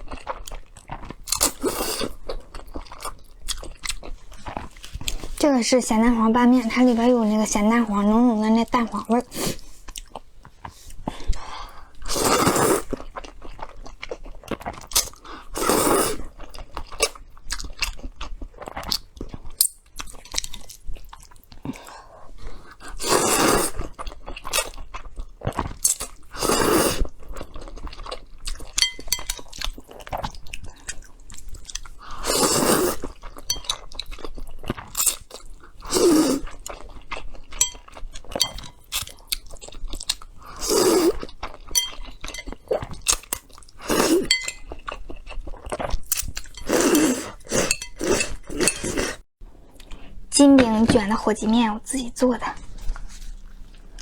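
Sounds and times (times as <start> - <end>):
chewing noodles: 8.7 - 50.2.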